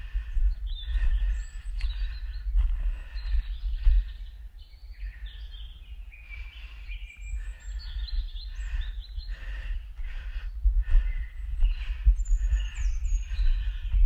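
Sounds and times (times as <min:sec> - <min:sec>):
faint footsteps: 0:00.0 - 0:04.1
low microphone rumble: 0:00.0 - 0:14.0
songbirds chirping: 0:00.0 - 0:14.0.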